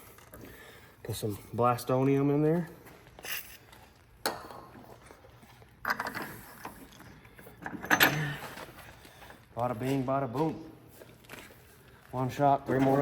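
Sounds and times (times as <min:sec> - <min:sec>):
tools clicking and scraping: 0:03.2 - 0:09.1.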